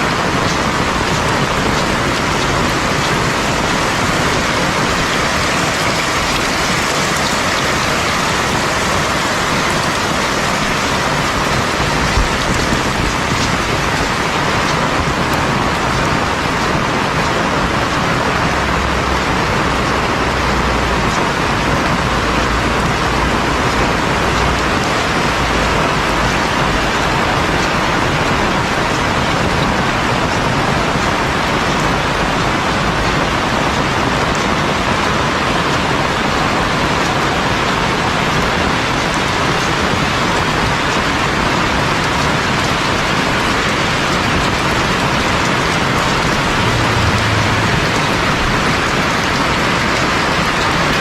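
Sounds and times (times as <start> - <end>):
heavy rain hissing: 0.0 - 51.0
low rumble: 44.3 - 50.6.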